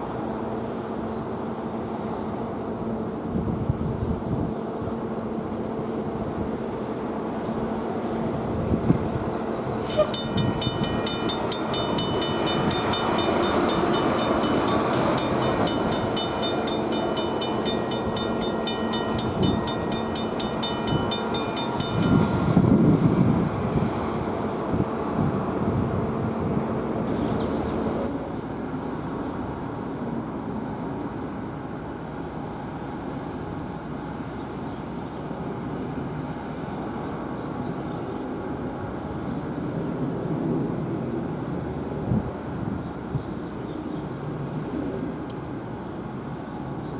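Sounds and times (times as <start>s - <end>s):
crossing bells ringing: 9.7s - 23.2s.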